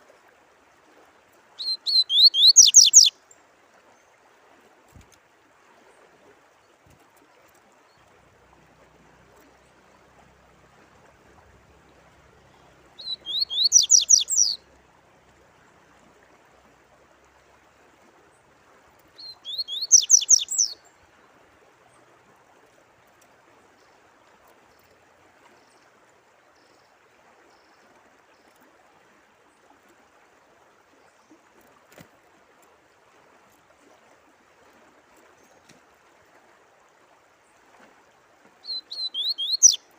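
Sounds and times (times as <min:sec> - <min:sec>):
running water: 0:00.0 - 0:39.9
songbird singing high notes: 0:01.6 - 0:03.2, 0:13.0 - 0:14.6, 0:19.2 - 0:20.8, 0:38.6 - 0:39.9.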